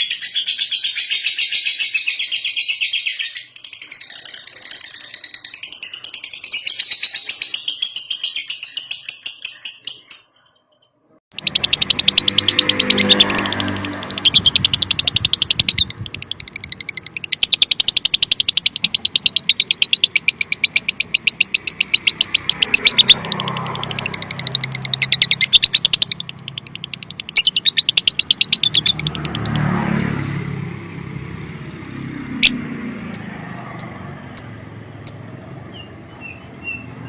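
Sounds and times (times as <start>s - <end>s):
lovebird chattering trill: 11.3s - 29.8s, 32.4s - 37.0s.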